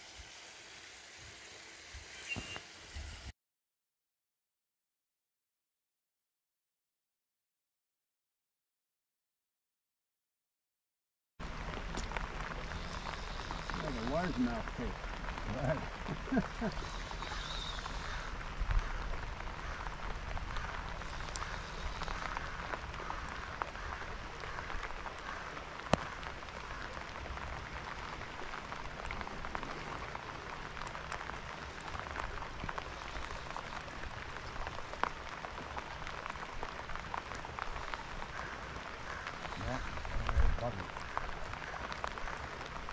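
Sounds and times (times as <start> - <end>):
rain falling on water: 0.0 - 3.3, 11.4 - 42.9
raindrop ticks: 11.4 - 42.9.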